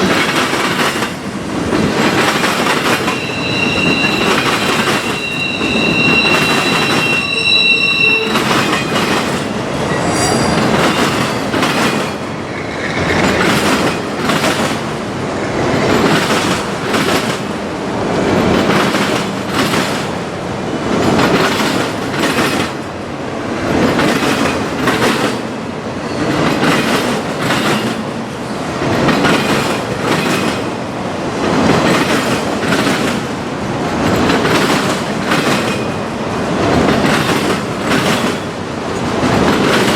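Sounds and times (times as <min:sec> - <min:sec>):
train wheels clacking over rail joints: 0:00.0 - 0:07.3, 0:10.5 - 0:12.3, 0:12.9 - 0:20.2, 0:20.9 - 0:22.9, 0:23.6 - 0:25.6, 0:26.3 - 0:30.8, 0:31.5 - 0:39.9
steel wheel squeal: 0:02.8 - 0:11.8.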